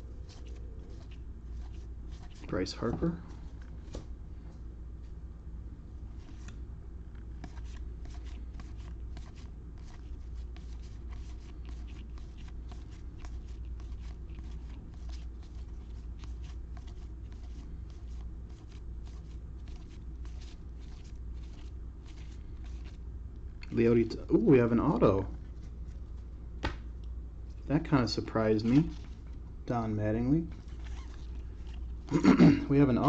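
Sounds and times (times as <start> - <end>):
steady low hum: 0.0 - 33.0
cards flicking and rustling: 0.1 - 4.1, 6.2 - 23.0, 24.4 - 26.9, 28.4 - 29.4.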